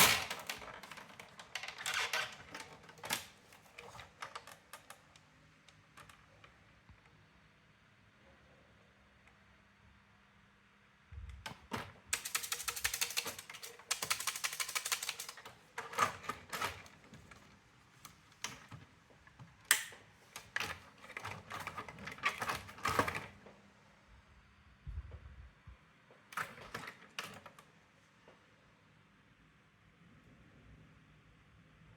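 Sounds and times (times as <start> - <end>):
typewriter mechanism clicking: 0.0 - 5.0, 12.1 - 16.9
typewriter printing rapid clicks: 12.1 - 16.9.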